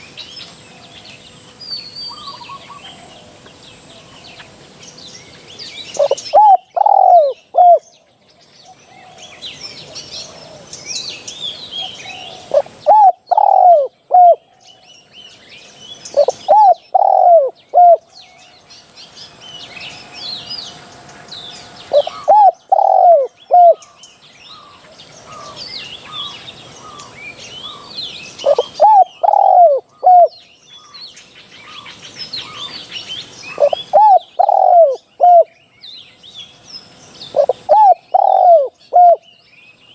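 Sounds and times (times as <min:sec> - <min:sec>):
small birds chirping: 0:00.0 - 0:39.9
dove cooing: 0:06.0 - 0:07.9, 0:11.8 - 0:14.5, 0:16.1 - 0:18.1, 0:21.9 - 0:23.9, 0:27.6 - 0:30.4, 0:33.4 - 0:35.5, 0:37.3 - 0:39.2.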